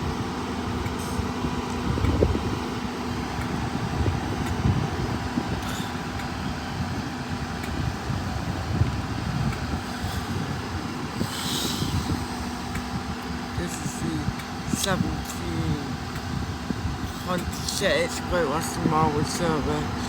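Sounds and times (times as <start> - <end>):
diesel train engine droning: 0.0 - 20.0
air hiss: 9.8 - 12.9.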